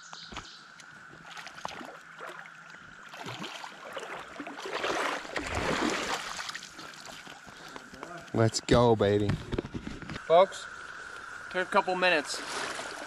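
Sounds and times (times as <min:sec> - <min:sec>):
cicada chorus humming: 0:00.0 - 0:13.0
river water splashing: 0:00.8 - 0:07.6.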